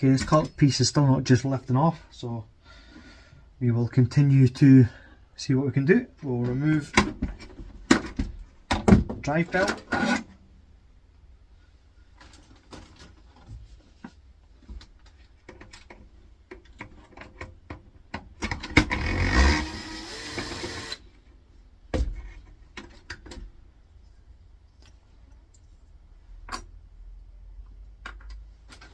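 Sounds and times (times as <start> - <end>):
plastic parts clicking and knocking: 14.6 - 19.0, 28.0 - 28.9.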